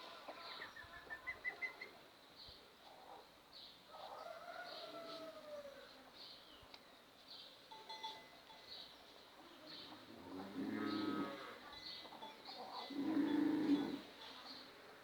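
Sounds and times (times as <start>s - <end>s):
cow mooing: 10.4s - 11.6s, 12.9s - 14.0s.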